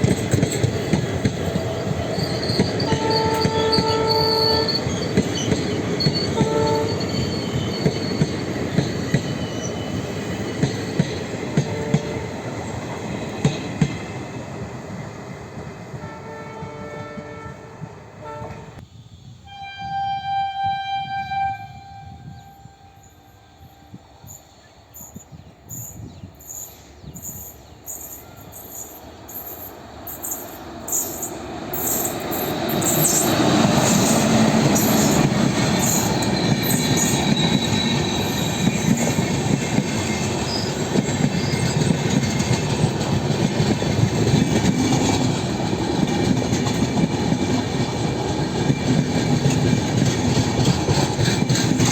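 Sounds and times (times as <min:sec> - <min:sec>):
train wheels clicking over rail joints: 0:00.0 - 0:16.0, 0:28.8 - 0:51.9
train passing with rumble and clatter: 0:00.0 - 0:18.9, 0:20.6 - 0:51.9
train horn blast: 0:02.9 - 0:05.0, 0:06.4 - 0:07.3, 0:11.6 - 0:12.4, 0:15.9 - 0:18.8, 0:19.4 - 0:24.3.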